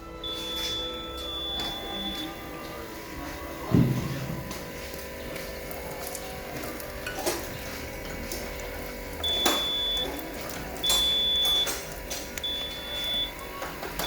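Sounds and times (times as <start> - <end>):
steady hum: 0.0 - 14.0
high electronic beep: 0.2 - 2.4, 9.2 - 10.1, 10.8 - 11.8, 12.4 - 13.4.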